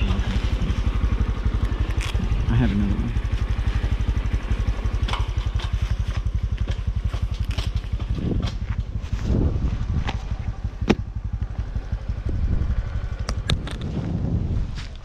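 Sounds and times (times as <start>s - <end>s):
motorcycle engine running: 0.0s - 15.0s
sharp clicks: 13.2s - 13.9s.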